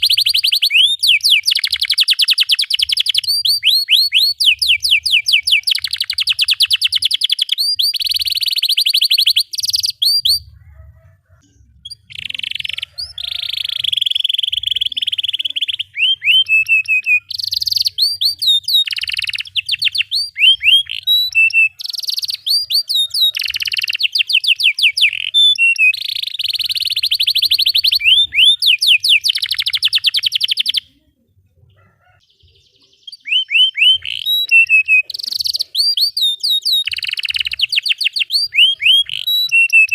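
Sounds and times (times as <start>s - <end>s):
canary singing trills and chirps: 0.0s - 39.9s.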